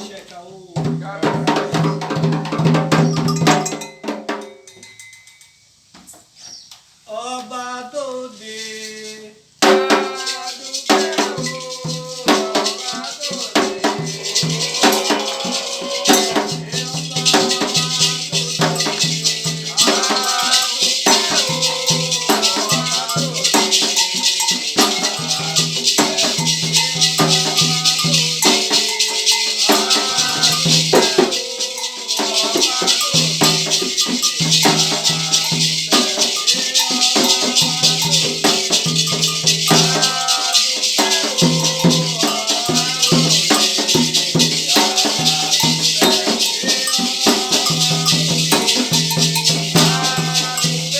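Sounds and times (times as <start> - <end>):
devotional singing: 0.0 - 3.9, 7.1 - 50.9
rattle shaken: 1.0 - 7.0, 8.2 - 50.9.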